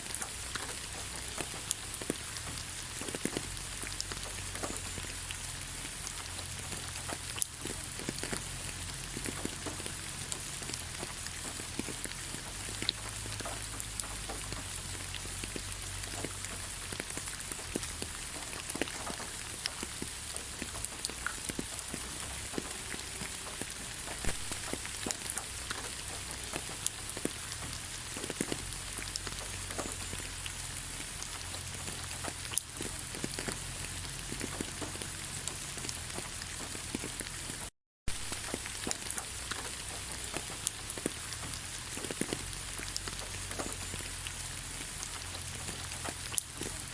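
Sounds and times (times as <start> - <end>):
raindrops tapping: 0.0 - 46.9
steady rain: 0.0 - 46.9.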